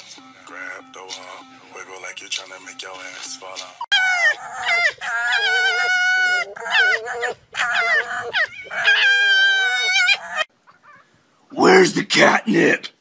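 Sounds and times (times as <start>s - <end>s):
foxes screaming: 3.9s - 11.1s.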